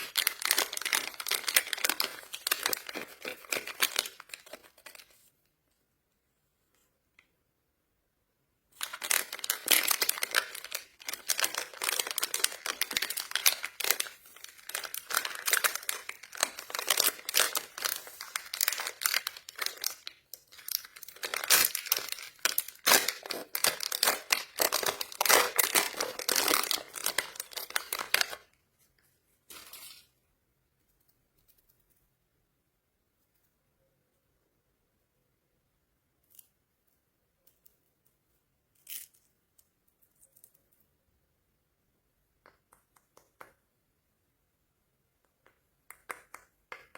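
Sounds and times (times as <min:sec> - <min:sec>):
plastic wrapper crinkling and tearing: 0:00.0 - 0:05.3, 0:08.8 - 0:28.6.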